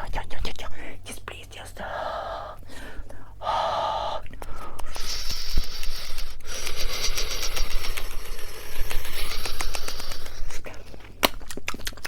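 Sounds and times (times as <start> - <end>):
breath blown into microphone: 1.9 - 10.7.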